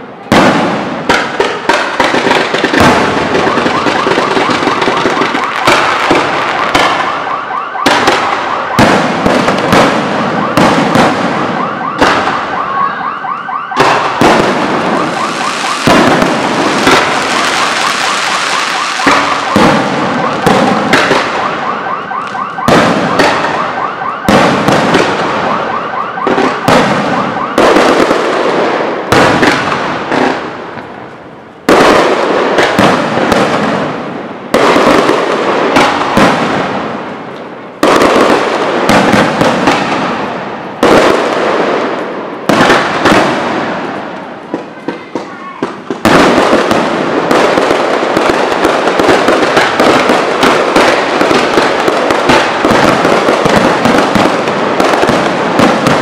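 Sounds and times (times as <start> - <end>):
firework shells banging: 13.8 - 21.4.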